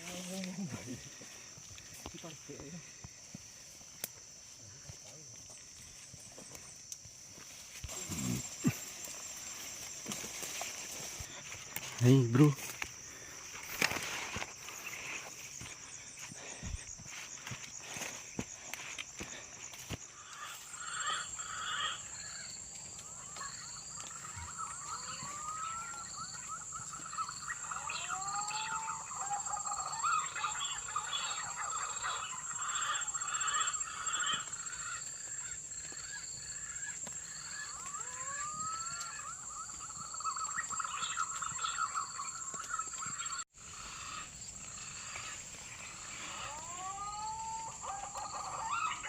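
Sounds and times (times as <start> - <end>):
insect drone: 0.0 - 49.0
chirping chorus: 20.2 - 49.0.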